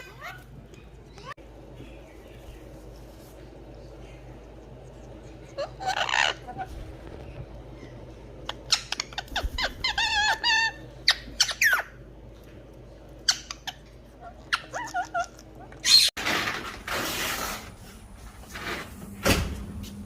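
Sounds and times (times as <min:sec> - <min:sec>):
parrots squawking: 0:05.1 - 0:06.9, 0:08.4 - 0:12.0, 0:13.2 - 0:16.1
parrot chirps and whistles: 0:08.5 - 0:11.9.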